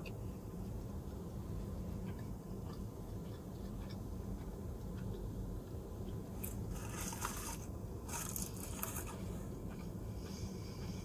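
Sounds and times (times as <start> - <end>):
low hum inside car: 0.0 - 11.0
person chewing: 2.1 - 5.2, 6.1 - 11.0
crackly crunching: 6.1 - 10.0.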